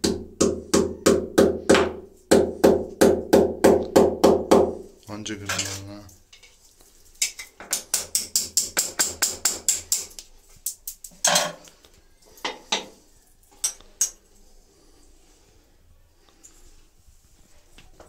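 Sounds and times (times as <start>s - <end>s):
hammer tapping metal: 7.3s - 10.2s.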